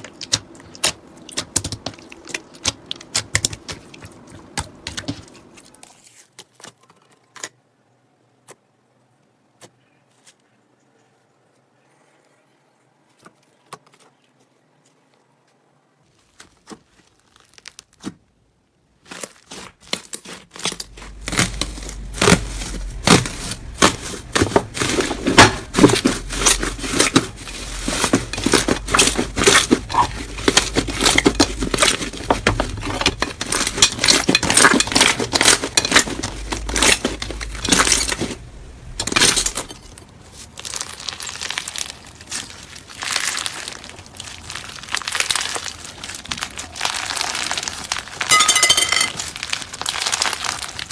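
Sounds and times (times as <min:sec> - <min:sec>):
slime crackling and popping: 0:20.6 - 0:48.3, 0:49.2 - 0:50.9.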